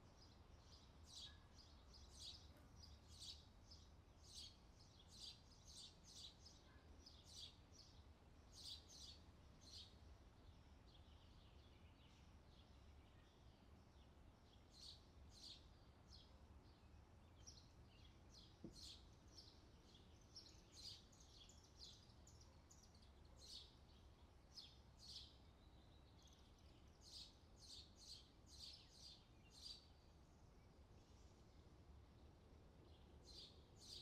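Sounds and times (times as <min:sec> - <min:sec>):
low steady background hum: 0:00.0 - 0:34.0
small birds chirping: 0:00.0 - 0:34.0
faint tap: 0:18.6 - 0:18.8.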